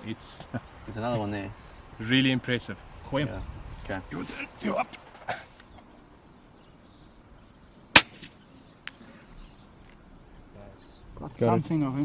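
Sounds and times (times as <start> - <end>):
air rifle shot: 8.0 - 8.4.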